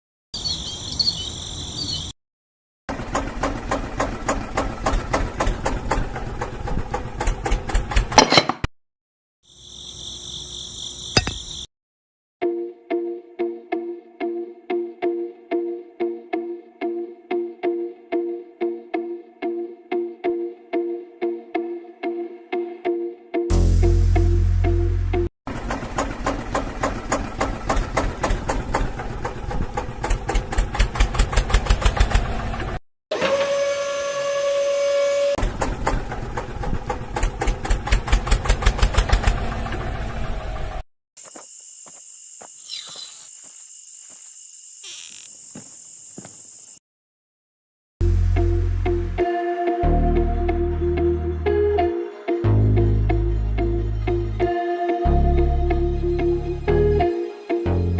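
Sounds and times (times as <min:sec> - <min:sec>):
high insect-like chirring: 0:09.5 - 0:11.7, 0:41.2 - 0:46.8.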